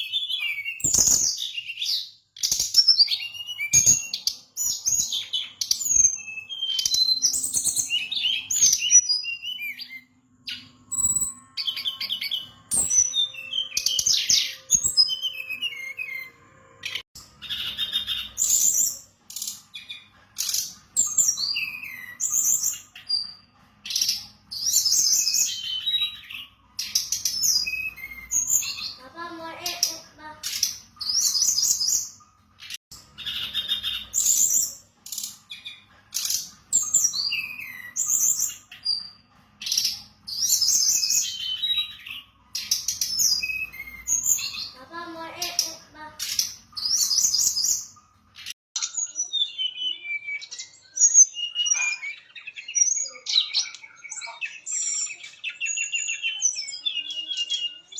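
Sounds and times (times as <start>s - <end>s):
bird singing high fast phrases: 0.0s - 57.9s.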